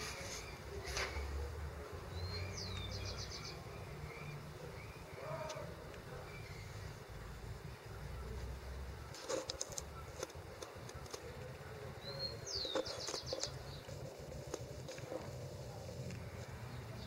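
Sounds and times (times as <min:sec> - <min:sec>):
clicks and rustles: 0:09.1 - 0:11.6, 0:12.5 - 0:16.5.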